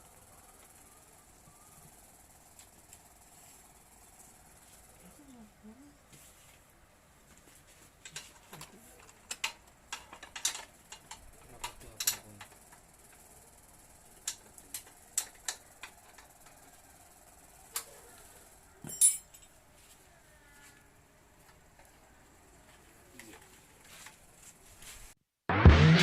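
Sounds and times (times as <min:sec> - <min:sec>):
small parts and tools clinking: 0:07.8 - 0:18.0, 0:18.8 - 0:19.6.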